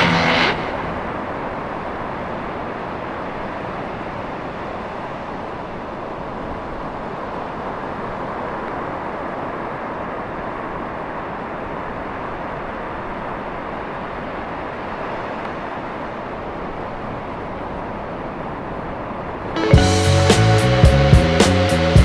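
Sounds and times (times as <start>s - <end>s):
surf: 0.0s - 1.6s, 19.6s - 22.0s
wind: 0.0s - 22.0s.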